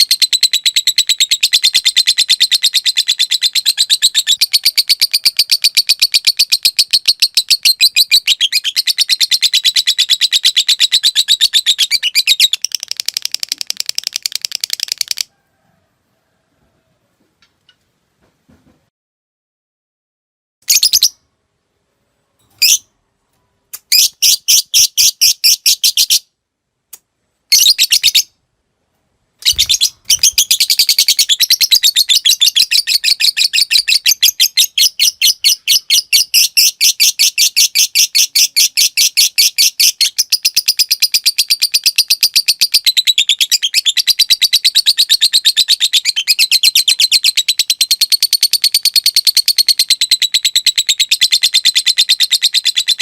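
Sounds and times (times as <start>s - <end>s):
lovebird chirping and chattering: 0.0s - 15.3s, 20.7s - 21.2s, 22.6s - 22.9s, 23.7s - 26.3s, 27.5s - 28.4s, 29.4s - 53.0s.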